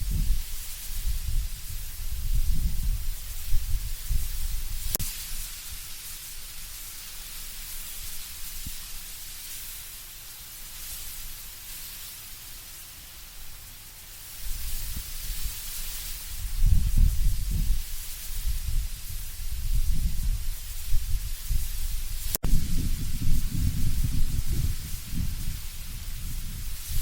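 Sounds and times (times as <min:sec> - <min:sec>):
low wind gusts rumbling: 0:00.0 - 0:05.0, 0:16.3 - 0:27.0
wind rustling leaves: 0:00.0 - 0:27.0.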